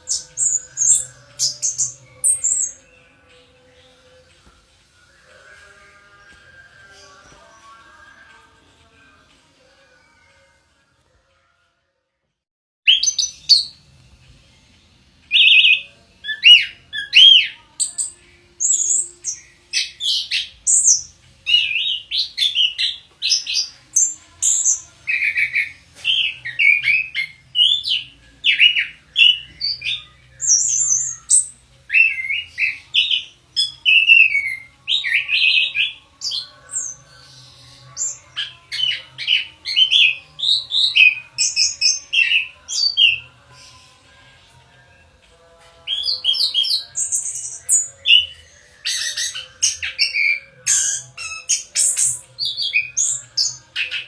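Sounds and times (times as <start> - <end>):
thrush singing: 0.0 - 11.8, 12.9 - 54.0.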